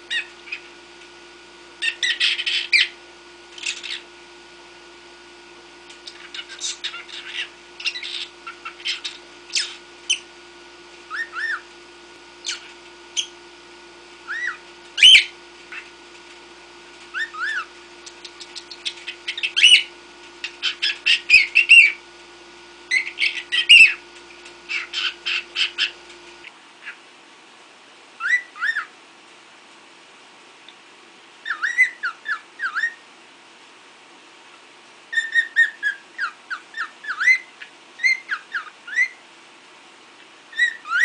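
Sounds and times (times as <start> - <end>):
cockatiel chattering: 0.1 - 0.7, 1.8 - 3.0, 3.6 - 4.0, 6.0 - 10.2, 11.1 - 11.6, 12.4 - 13.3, 14.3 - 15.8, 17.1 - 22.0, 22.9 - 24.0, 24.7 - 26.0, 31.4 - 33.0, 35.1 - 39.2.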